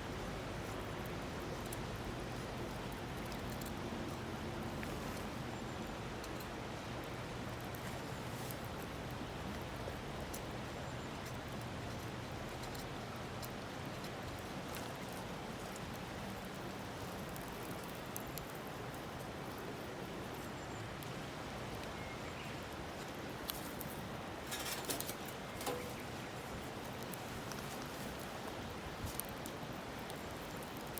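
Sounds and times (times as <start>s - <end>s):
fire crackles and pops: 0.0s - 30.9s
campfire hissing: 12.2s - 30.9s.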